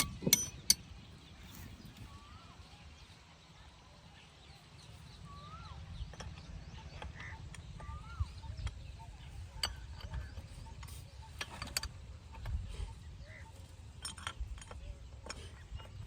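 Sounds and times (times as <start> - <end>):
metallic clicks and clinks: 0.0 - 1.6, 13.6 - 16.0.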